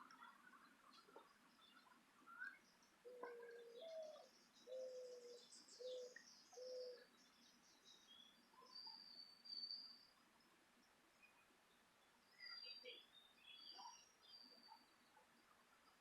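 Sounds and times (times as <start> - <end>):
small birds chirping: 0.0 - 16.0
dove cooing: 3.1 - 7.1.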